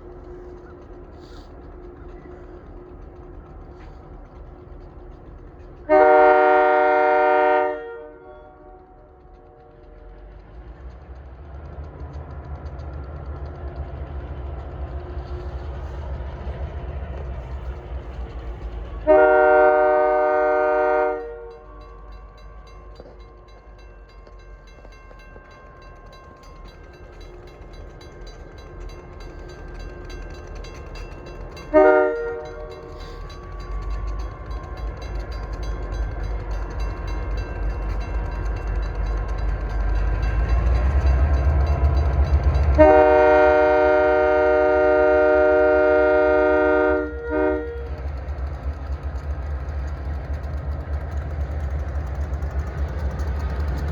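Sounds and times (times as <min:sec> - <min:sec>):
locomotive engine rumble: 0:00.0 - 0:53.9
train horn blasts: 0:05.9 - 0:09.0, 0:19.1 - 0:21.9, 0:31.7 - 0:33.0, 0:42.7 - 0:48.1.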